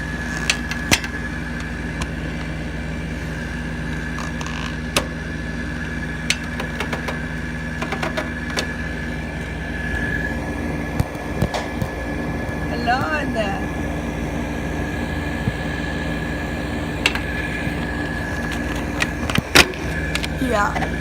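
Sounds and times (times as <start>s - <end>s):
air conditioner humming: 0.0s - 21.0s
high whine: 0.0s - 21.0s
sharp clicks and knocks: 6.2s - 8.8s.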